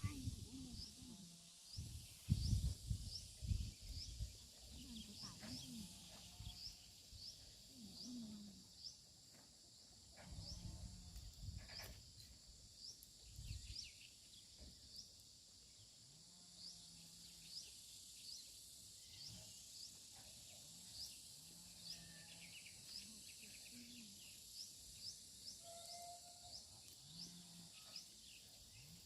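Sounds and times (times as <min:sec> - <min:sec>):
low muffled sounds: 0:00.0 - 0:06.6.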